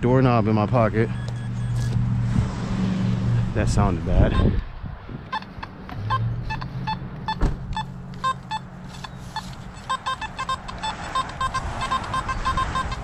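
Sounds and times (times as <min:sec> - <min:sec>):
metal detector beeps: 0:01.1 - 0:02.0, 0:04.3 - 0:04.6, 0:05.3 - 0:13.0.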